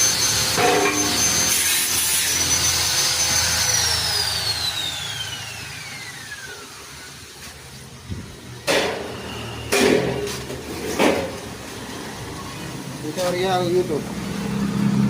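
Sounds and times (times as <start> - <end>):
disc cutter slicing through steel: 0.0 - 7.4.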